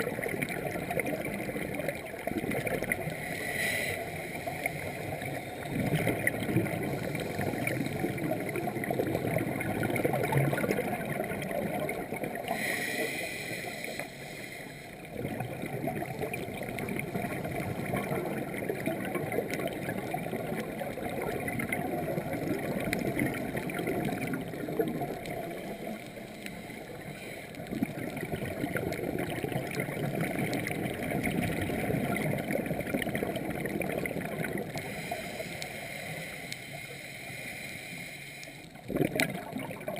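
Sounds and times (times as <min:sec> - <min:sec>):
underwater exhaled bubbles: 0:00.0 - 0:39.9
regulator breathing: 0:12.5 - 0:15.1, 0:25.3 - 0:27.7, 0:34.8 - 0:38.8.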